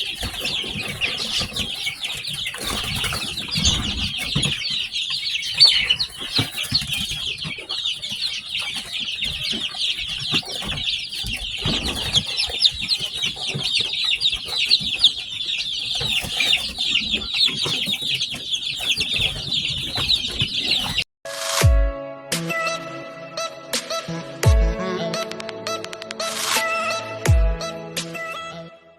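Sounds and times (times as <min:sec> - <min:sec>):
chicks peeping: 0:00.0 - 0:21.1.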